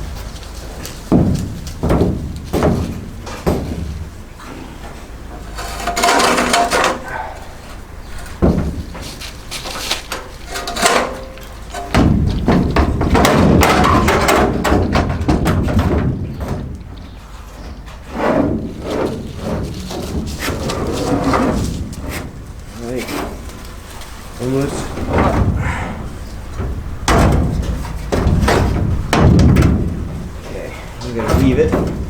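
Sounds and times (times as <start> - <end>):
metal parts knocking and clanking: 5.2 - 7.2, 8.2 - 32.0
sharp metallic impacts: 5.4 - 16.8, 18.2 - 32.0.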